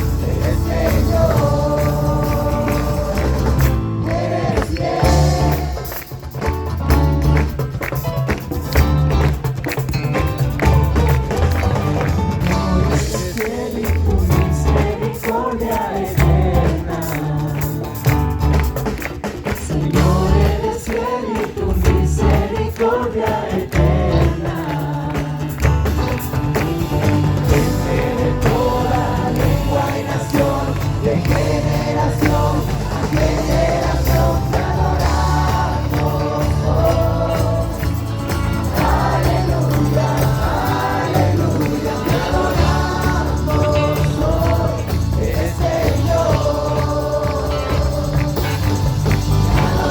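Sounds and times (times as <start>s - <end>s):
group singing worship song: 0.0s - 8.0s, 10.6s - 49.9s
music with heavy pulsing bass: 0.0s - 15.0s, 25.5s - 49.9s.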